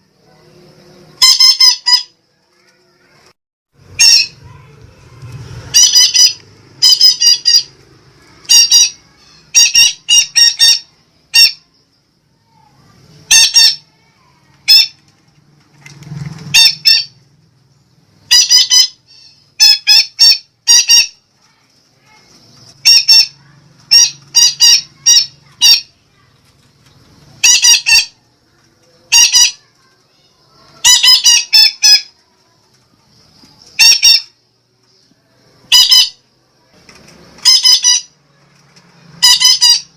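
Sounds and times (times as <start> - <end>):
parakeet shrill calls: 1.2 - 2.1, 3.9 - 4.5, 5.6 - 7.8, 8.4 - 11.7, 13.2 - 13.8, 14.6 - 15.0, 16.5 - 17.2, 18.3 - 21.2, 22.8 - 25.9, 27.4 - 28.2, 29.1 - 29.7, 30.8 - 32.1, 33.8 - 34.4, 35.7 - 36.2, 37.4 - 38.1, 39.2 - 39.9.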